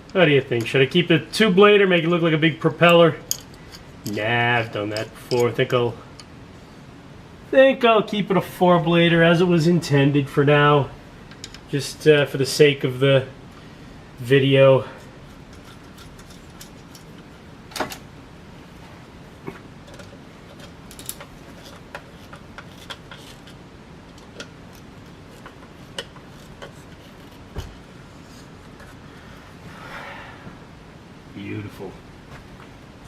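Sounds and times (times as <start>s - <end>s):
screws and metal parts clicking: 15.4s - 17.2s.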